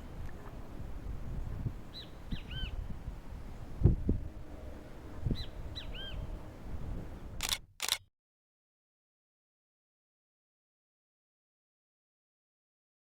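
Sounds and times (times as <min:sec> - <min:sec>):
low wind rumble: 0:00.0 - 0:07.7
short bursts of noise: 0:07.4 - 0:08.1.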